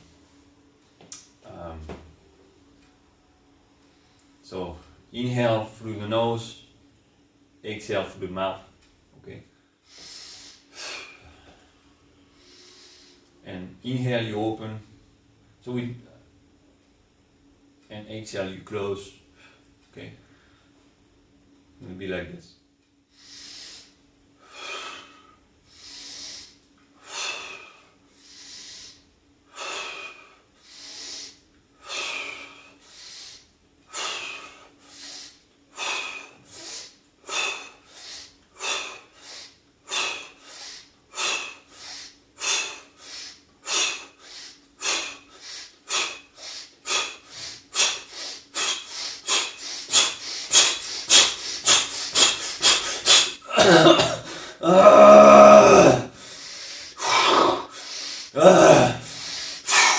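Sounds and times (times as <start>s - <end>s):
man breathing forcefully: 23.1s - 59.9s.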